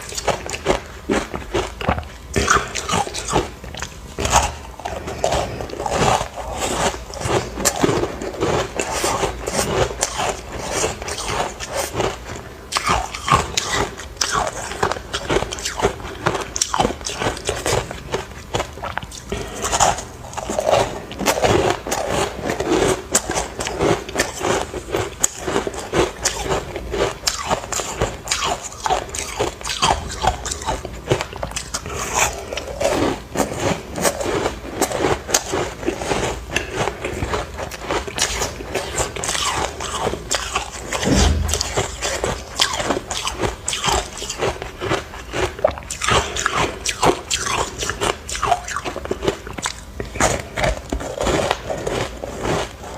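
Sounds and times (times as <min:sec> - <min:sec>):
dull low thump: 0:41.0 - 0:42.1.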